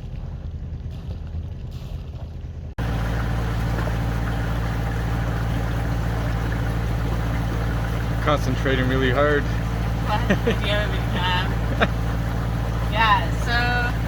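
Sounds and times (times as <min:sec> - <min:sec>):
boat engine running steadily: 0:00.0 - 0:14.0
wind and water hiss: 0:02.8 - 0:14.0.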